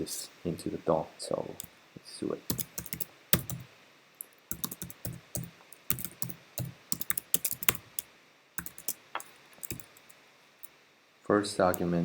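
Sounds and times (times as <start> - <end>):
typing on computer keyboard: 2.5 - 3.7, 4.5 - 8.0, 8.6 - 10.1.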